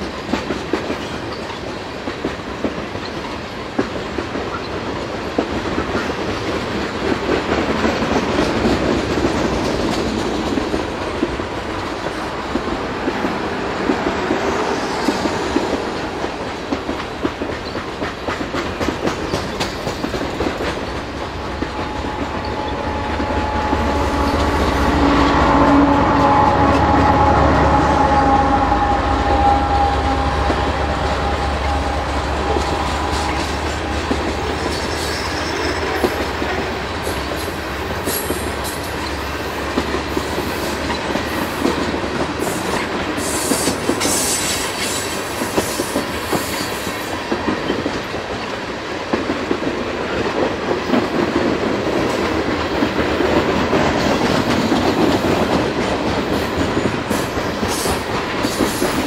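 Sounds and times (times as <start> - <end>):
diesel locomotive engine rumble: 0.0 - 59.0
high-pitched wheel squeals: 21.7 - 36.2.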